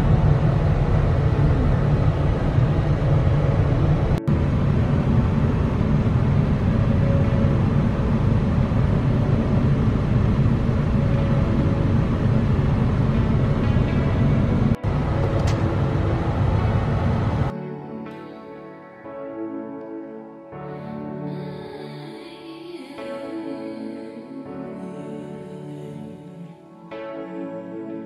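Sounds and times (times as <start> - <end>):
car road and engine rumble: 0.0 - 17.5.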